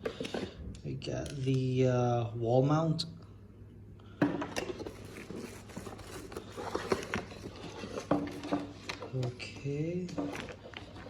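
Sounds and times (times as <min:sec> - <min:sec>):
packaging clicks and rustling: 0:04.6 - 0:11.0.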